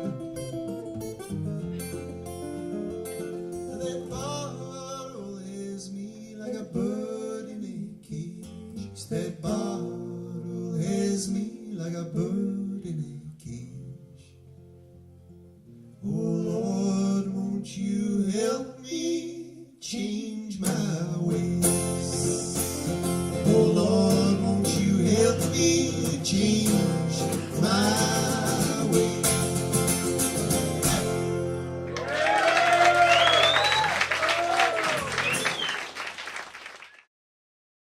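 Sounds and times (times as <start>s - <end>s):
acoustic guitar strumming melody: 0.0s - 5.5s, 20.6s - 31.9s
audience cheering and whistling: 31.9s - 37.1s.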